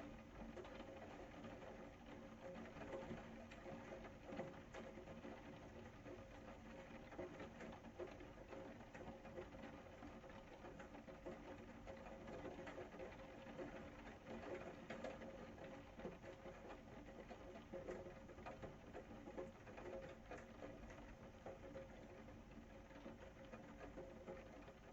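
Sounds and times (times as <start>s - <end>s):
rain pattering: 0.0s - 24.9s.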